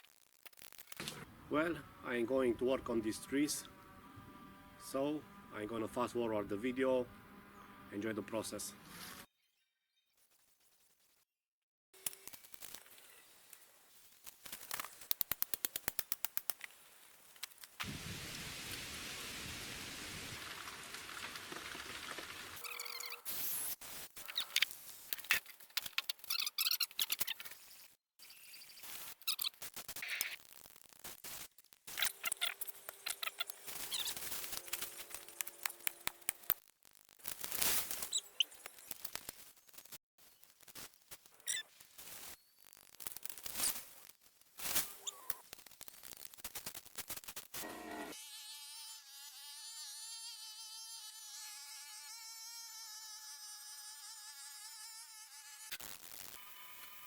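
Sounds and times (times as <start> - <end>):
fast-forwarded clicks and knocks: 15.0 - 16.7
rain-like hiss: 17.8 - 22.6
high chirpy squeaks: 22.6 - 23.6, 26.1 - 27.5, 28.2 - 30.3, 31.9 - 36.0, 38.0 - 39.0, 41.4 - 41.7, 44.9 - 45.4
sharp clicks: 34.7 - 36.6.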